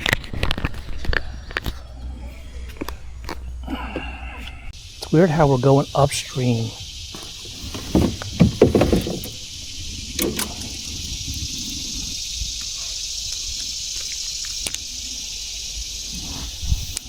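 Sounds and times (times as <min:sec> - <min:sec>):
low rumble: 0:00.0 - 0:05.0
insects chirping: 0:00.0 - 0:17.0.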